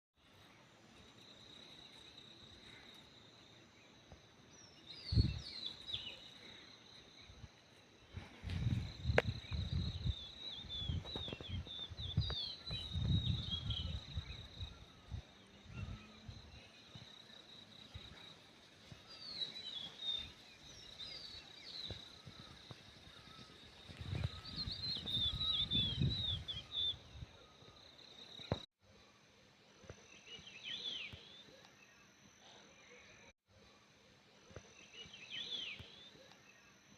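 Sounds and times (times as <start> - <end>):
small birds twittering: 0.3 - 28.7, 34.5 - 36.9
wind on microphone: 5.0 - 5.5, 8.2 - 16.6, 21.9 - 27.4.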